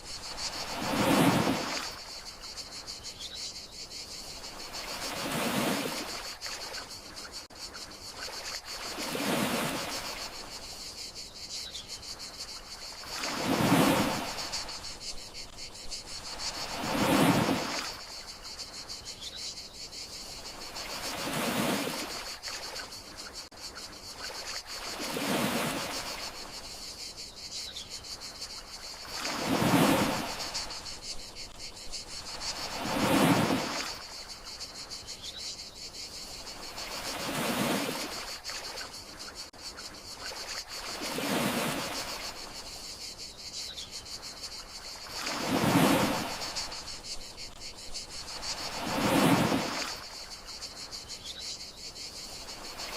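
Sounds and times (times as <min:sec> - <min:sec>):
gentle sea waves washing: 0:00.0 - 0:02.6, 0:04.1 - 0:07.4, 0:08.1 - 0:10.8, 0:12.5 - 0:18.7, 0:20.4 - 0:23.4, 0:24.2 - 0:26.8, 0:28.4 - 0:34.8, 0:36.4 - 0:39.2, 0:40.2 - 0:42.7, 0:44.8 - 0:50.8
crickets chirring: 0:00.0 - 0:52.9.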